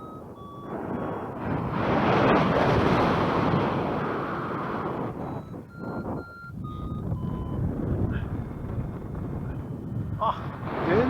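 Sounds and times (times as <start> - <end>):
electronic beeps changing pitch: 0.0 - 1.2, 4.3 - 10.0
wind on microphone: 0.0 - 11.0.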